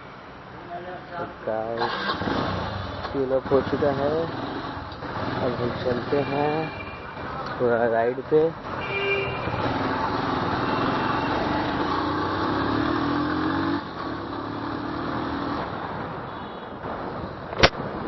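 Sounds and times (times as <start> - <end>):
sharp click: 17.5 - 17.8.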